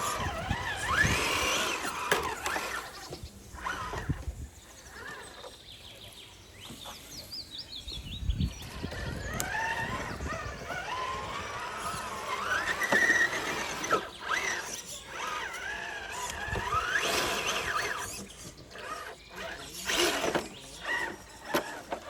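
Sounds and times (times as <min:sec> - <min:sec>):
electric motor and gears whining: 0:00.0 - 0:07.0, 0:08.2 - 0:22.0.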